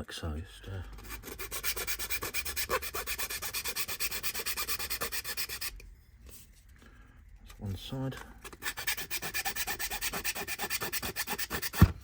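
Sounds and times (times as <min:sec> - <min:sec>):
hand sanding wood: 0:01.0 - 0:05.7, 0:08.6 - 0:11.9.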